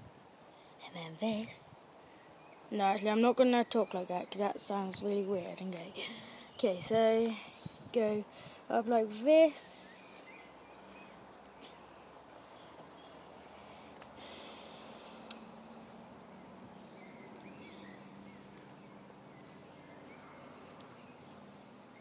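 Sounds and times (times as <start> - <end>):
distant bird chirps: 9.4 - 22.0.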